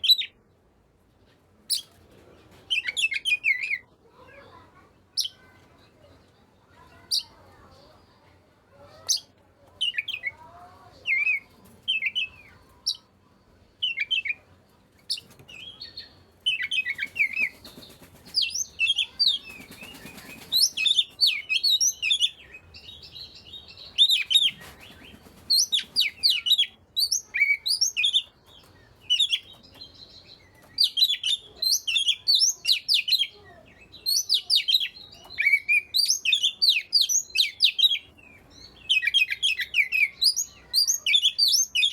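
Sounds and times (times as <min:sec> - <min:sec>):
songbird whistling and chirping: 0:00.0 - 0:00.4, 0:02.7 - 0:03.9, 0:11.0 - 0:13.1, 0:13.8 - 0:14.4, 0:15.1 - 0:41.9.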